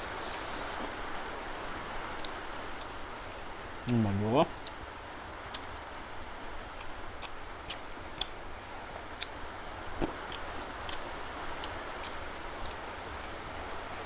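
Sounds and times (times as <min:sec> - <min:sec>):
steady background hiss: 0:00.0 - 0:14.0
chewing: 0:06.8 - 0:08.4, 0:10.3 - 0:11.0
mouth clicks and smacks: 0:06.8 - 0:08.4.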